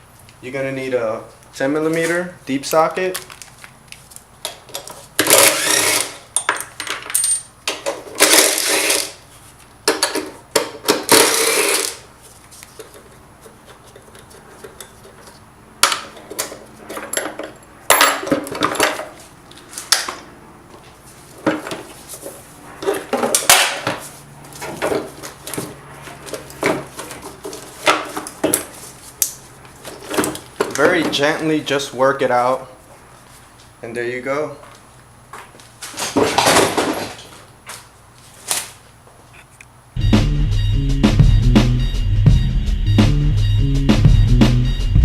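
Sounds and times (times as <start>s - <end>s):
metal tools clinking on metal: 6.4s - 9.0s, 16.1s - 19.1s.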